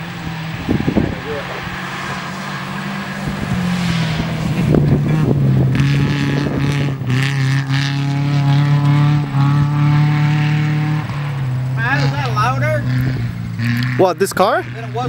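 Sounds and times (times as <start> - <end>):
car engine running hard: 0.0 - 15.0.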